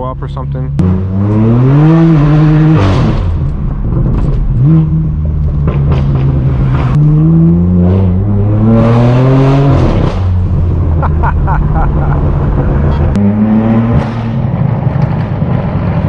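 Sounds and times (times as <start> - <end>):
car engine revving: 0.2 - 16.0
exhaust pops and crackles: 3.1 - 7.0.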